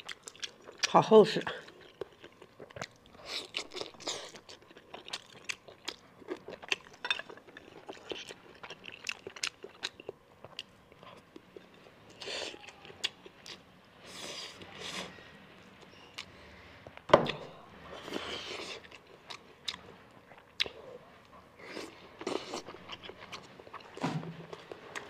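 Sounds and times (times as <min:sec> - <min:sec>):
wet chewing and mouth clicks: 0:00.0 - 0:14.7, 0:18.0 - 0:20.8.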